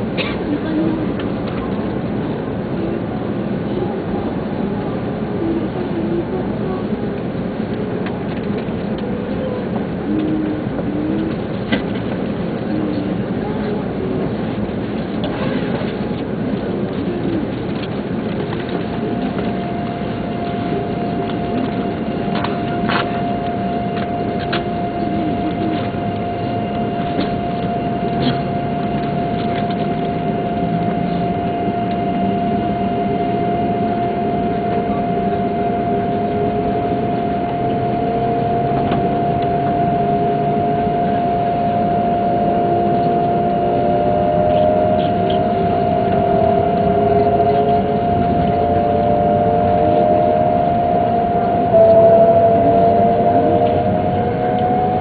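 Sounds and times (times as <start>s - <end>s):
train running rumble: 0.0s - 55.0s
traction motors rising tones: 18.8s - 55.0s.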